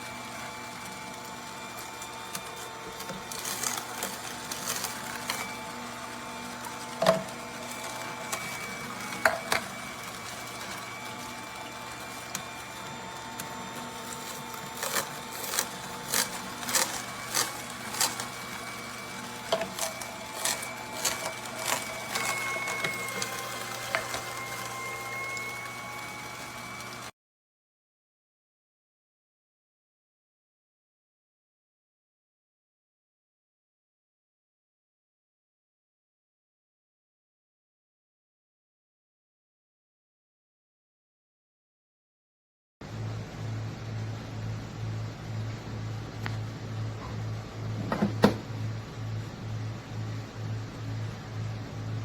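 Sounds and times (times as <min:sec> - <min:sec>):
juicer motor humming: 0:00.0 - 0:27.1, 0:42.8 - 0:52.0.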